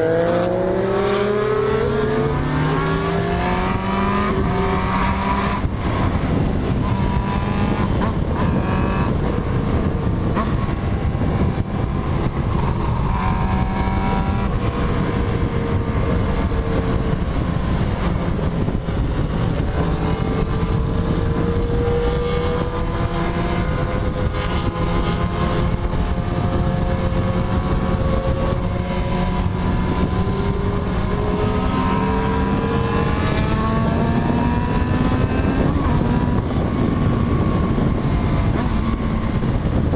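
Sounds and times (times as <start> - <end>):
motorcycle engine: 0.0 - 39.9
wind rush: 0.0 - 39.9.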